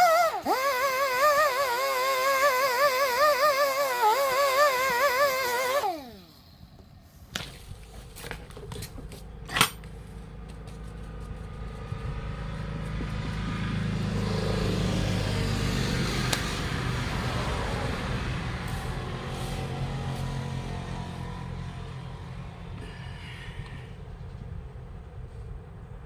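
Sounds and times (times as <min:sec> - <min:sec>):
motor running: 0:00.0 - 0:07.0.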